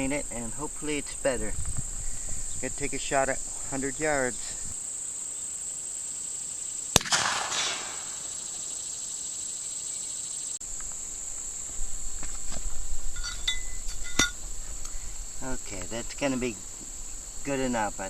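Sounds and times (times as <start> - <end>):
gunshot with echo: 7.0 - 8.3.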